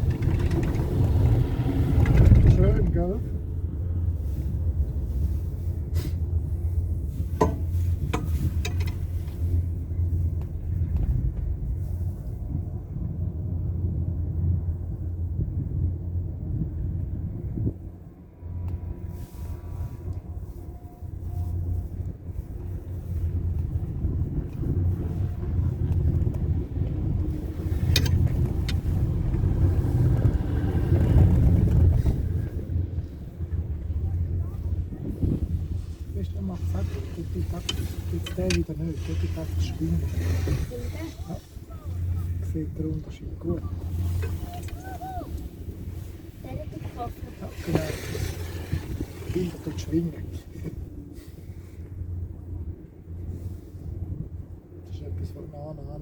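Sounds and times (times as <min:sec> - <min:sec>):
chairlift clicks and clanks: 0:00.0 - 0:03.0, 0:07.3 - 0:09.4, 0:27.2 - 0:32.1, 0:36.9 - 0:41.0
wind rumble on microphone: 0:00.0 - 0:56.0.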